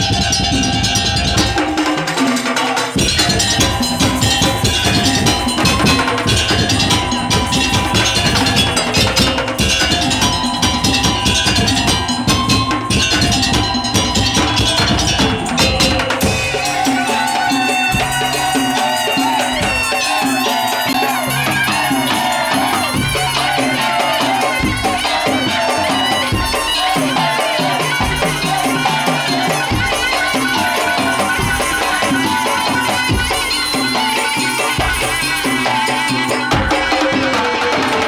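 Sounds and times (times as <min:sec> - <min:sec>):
wavering melodic lead: 0:00.0 - 0:37.7
drum strokes: 0:00.0 - 0:38.0
rattling percussion: 0:00.0 - 0:38.0.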